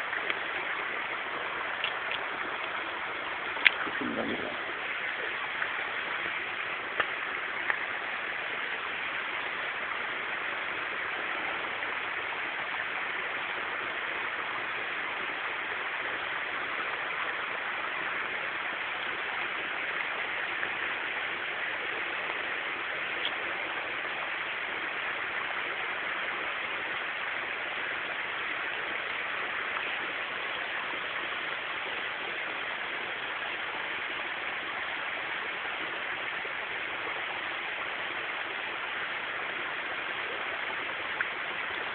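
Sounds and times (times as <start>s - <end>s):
stream water flowing: 0.0s - 41.9s
faint clicks: 1.8s - 2.8s, 3.4s - 5.7s.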